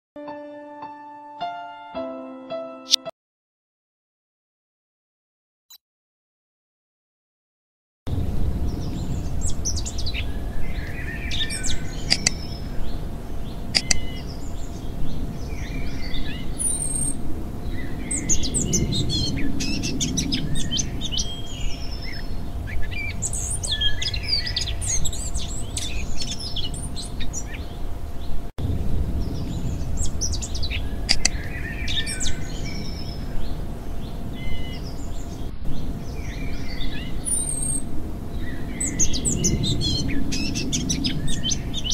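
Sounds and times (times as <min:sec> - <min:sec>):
low steady rumble: 0:08.1 - 0:41.9
small birds chirping: 0:08.7 - 0:28.4, 0:29.2 - 0:41.9.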